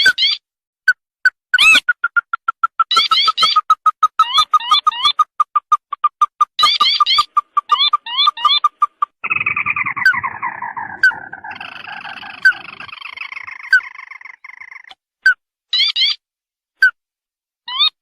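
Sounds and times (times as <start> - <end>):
bird calls and churring trill: 1.6 - 14.9.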